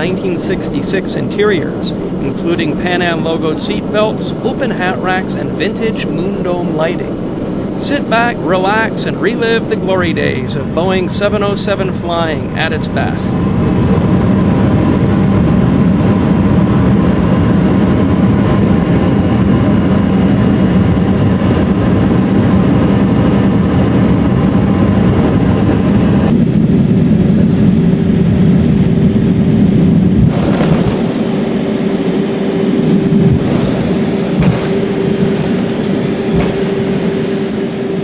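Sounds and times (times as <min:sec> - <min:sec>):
jet engines running: 0:00.0 - 0:38.0.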